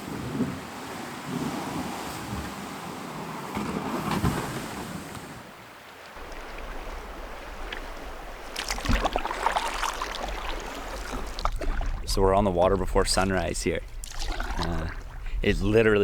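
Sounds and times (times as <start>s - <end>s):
paddle splashes: 5.9s - 16.0s
water sloshing around canoe: 6.2s - 16.0s
wind buffeting microphone: 6.2s - 16.0s.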